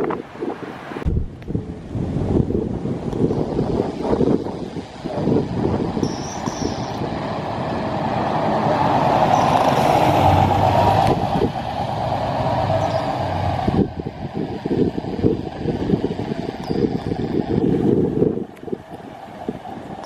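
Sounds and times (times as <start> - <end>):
wind buffeting microphone: 0.0 - 20.0
large vehicle passing: 6.7 - 20.0.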